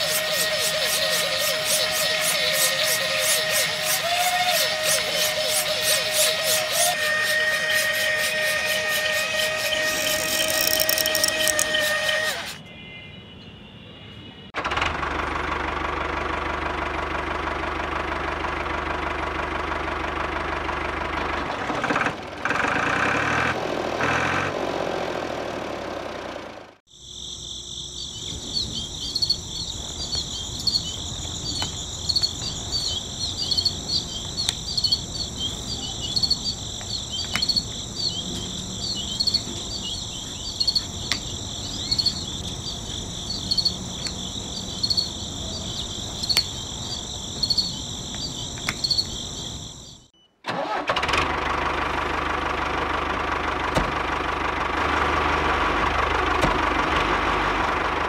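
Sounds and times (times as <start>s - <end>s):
small electric motors running: 0.0s - 12.6s
cricket chirping: 4.5s - 12.1s, 26.9s - 50.3s
toy bricks clicking: 9.9s - 11.9s.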